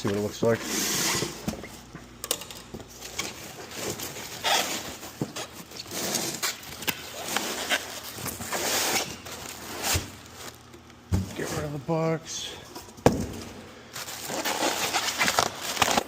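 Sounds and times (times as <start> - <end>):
cardboard rustling and scraping: 3.2 - 10.7, 14.0 - 16.0.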